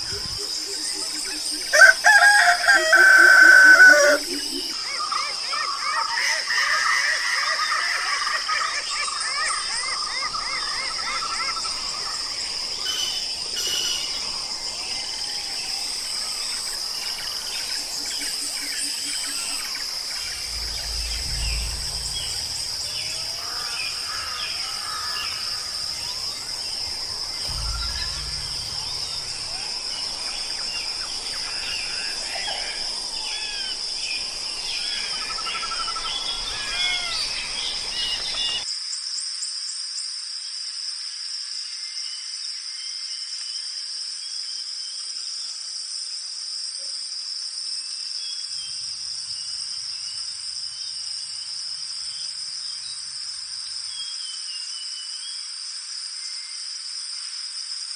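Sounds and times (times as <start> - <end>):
insect chorus: 0.0 - 57.9
birds chirping and calling: 0.1 - 38.6
low rumbles: 19.4 - 38.6.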